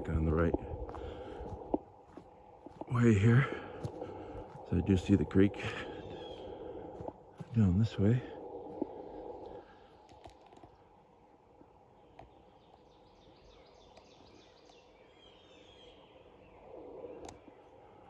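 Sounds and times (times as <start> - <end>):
quiet forest background: 0.0 - 18.0
footsteps crunching on leaves: 0.8 - 7.9.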